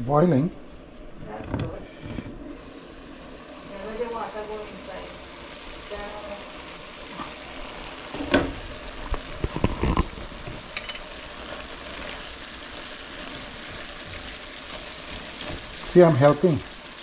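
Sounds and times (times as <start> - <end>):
squash sizzling in a pot: 0.0 - 17.0
spoon knocking against pot: 10.8 - 11.1.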